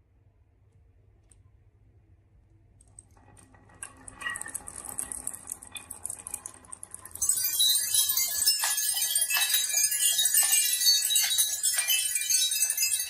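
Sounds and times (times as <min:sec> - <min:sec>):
marbles rattling down wooden run: 0:03.4 - 0:13.0.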